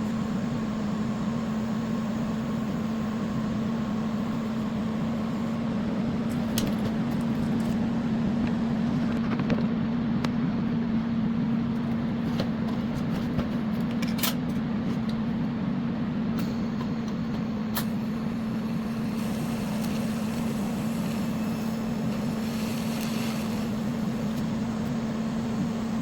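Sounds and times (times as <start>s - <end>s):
welding machine hum: 0.0s - 9.6s, 11.2s - 26.0s
welding arc crackles and pops: 17.1s - 26.0s.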